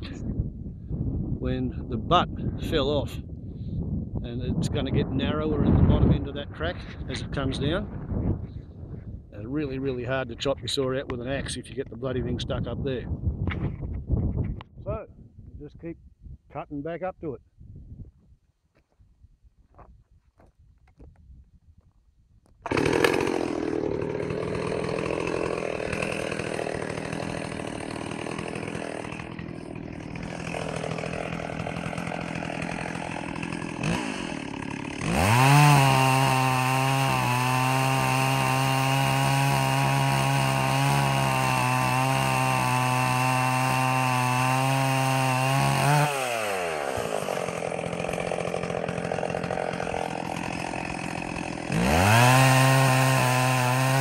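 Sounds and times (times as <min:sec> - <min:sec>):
chainsaw cutting and revving: 0:22.6 - 0:54.0.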